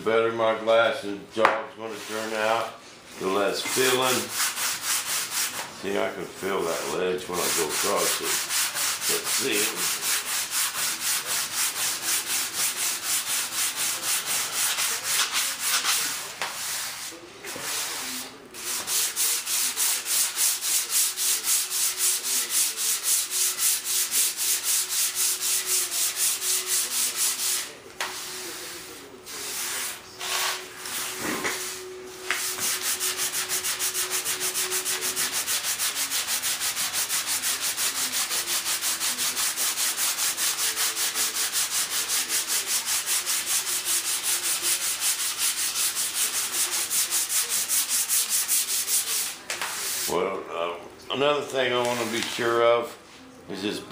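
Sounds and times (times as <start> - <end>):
sandpaper rubbing back and forth: 3.6 - 5.6, 6.4 - 50.1.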